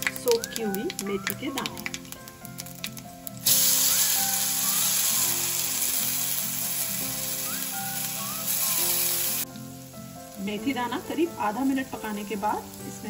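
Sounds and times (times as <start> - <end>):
seeds sizzling in hot oil: 0.0 - 13.0.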